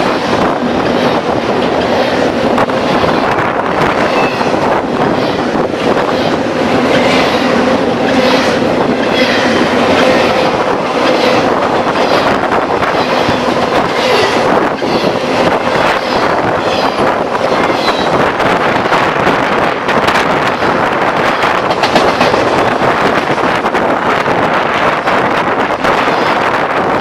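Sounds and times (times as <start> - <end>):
wheels clicking over track: 0.0 - 24.4
train rolling past: 0.0 - 27.0.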